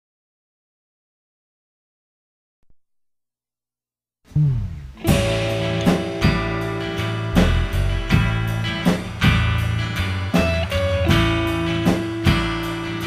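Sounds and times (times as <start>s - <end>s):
slide guitar: 4.3s - 13.0s
strummed guitar chords: 4.3s - 13.0s.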